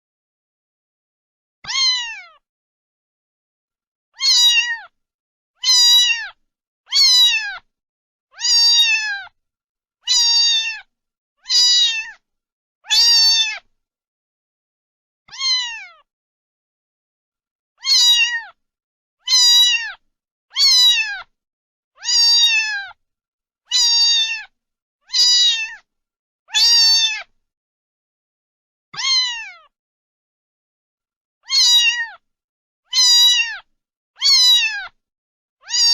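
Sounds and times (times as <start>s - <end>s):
cat meowing: 1.6s - 2.4s, 4.2s - 5.0s, 5.6s - 7.7s, 8.3s - 9.4s, 10.1s - 12.2s, 12.8s - 13.7s, 15.3s - 16.1s, 17.8s - 18.6s, 19.2s - 21.3s, 22.0s - 23.0s, 23.7s - 24.5s, 25.1s - 25.9s, 26.5s - 27.3s, 29.0s - 29.7s, 31.4s - 32.2s, 32.9s - 35.0s, 35.6s - 35.9s.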